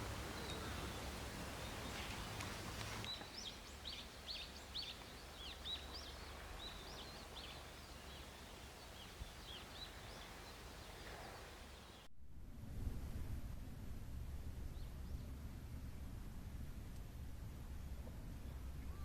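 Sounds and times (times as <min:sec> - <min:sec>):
small bird singing: 0:00.0 - 0:12.1.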